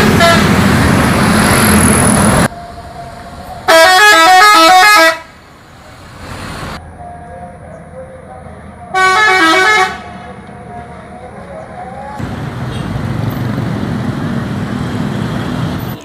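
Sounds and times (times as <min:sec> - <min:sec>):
loud vehicle rumble: 0:00.0 - 0:16.0
multi-tone horn playing notes: 0:03.7 - 0:05.3, 0:08.9 - 0:10.1.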